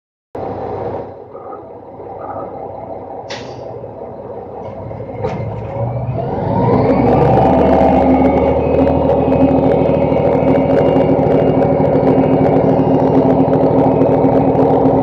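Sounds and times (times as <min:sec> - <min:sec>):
garbage truck diesel engine: 0:00.4 - 0:15.0
sharp click: 0:03.3 - 0:03.7.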